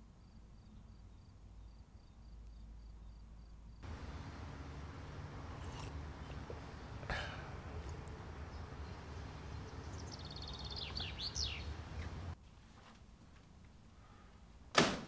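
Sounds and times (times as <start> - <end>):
bird chirping: 3.8 - 12.4
steady low outdoor rumble: 3.8 - 12.4.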